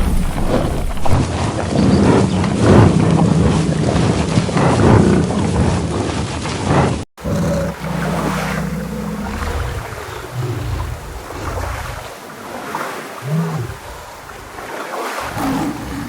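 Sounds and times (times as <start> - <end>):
large animal vocalizing: 6.7 - 12.2, 13.1 - 14.6, 15.2 - 16.0.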